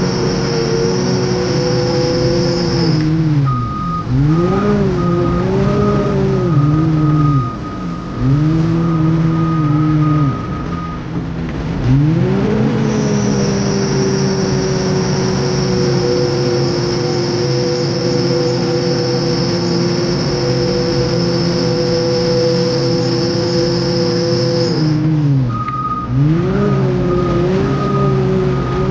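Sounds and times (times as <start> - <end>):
diesel engine working under load: 0.0 - 28.9
steady high-pitched whine: 0.0 - 28.9.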